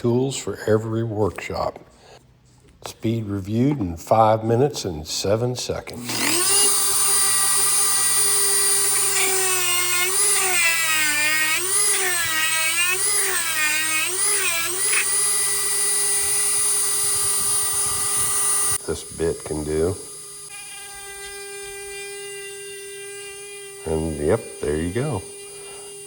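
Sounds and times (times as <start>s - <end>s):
rotary tool whining: 5.9s - 26.0s.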